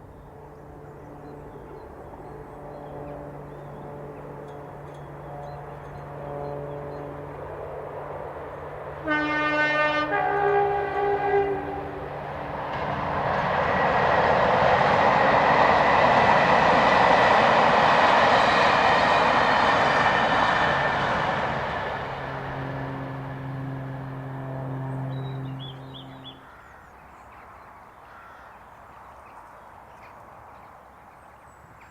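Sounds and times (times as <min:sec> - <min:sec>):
diesel locomotives passing: 0:00.0 - 0:31.9
two-tone locomotive horn: 0:02.4 - 0:08.0, 0:08.9 - 0:12.2, 0:19.8 - 0:26.6.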